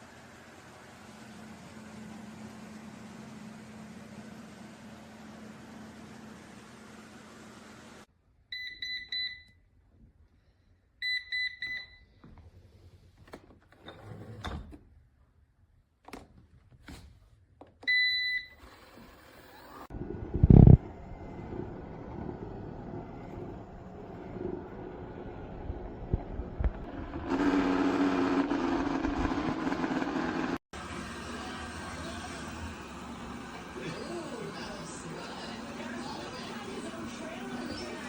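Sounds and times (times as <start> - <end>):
robot vacuum running: 18.6 - 27.6.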